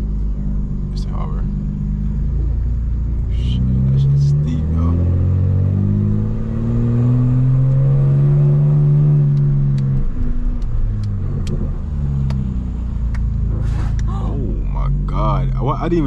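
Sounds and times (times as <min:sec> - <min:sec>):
car engine accelerating: 0:00.0 - 0:16.0
sharp clicks: 0:09.3 - 0:12.5.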